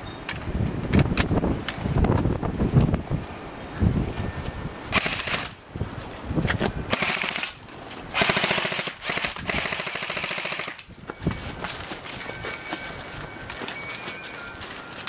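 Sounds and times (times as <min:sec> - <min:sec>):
airsoft gun firing bursts: 0:04.9 - 0:05.6, 0:06.9 - 0:07.6, 0:08.2 - 0:10.9.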